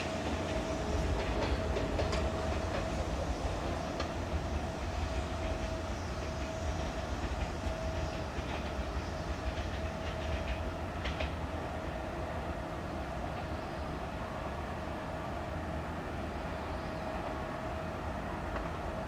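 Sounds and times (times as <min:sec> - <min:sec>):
electric train rumbling: 0:00.0 - 0:19.0
wheels clicking over rail joints: 0:00.2 - 0:11.4.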